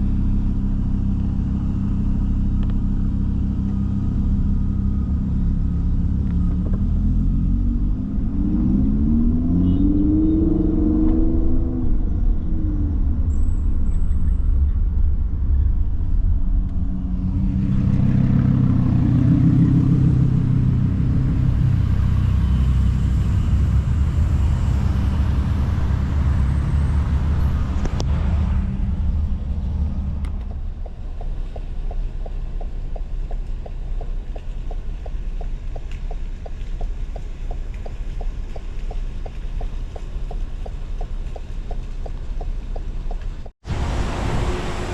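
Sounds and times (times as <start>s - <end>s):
car engines rumbling: 0.0s - 44.9s
car passing by: 43.6s - 44.9s.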